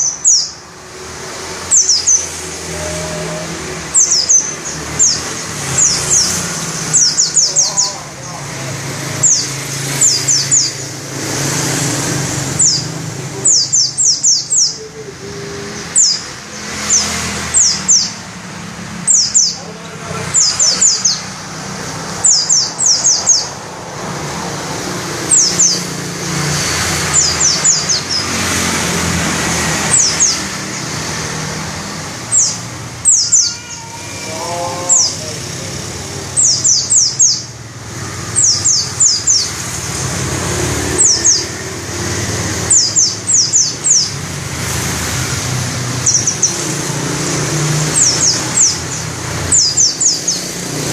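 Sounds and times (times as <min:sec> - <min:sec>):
bird singing shrill falling notes: 0:32.3 - 0:35.5.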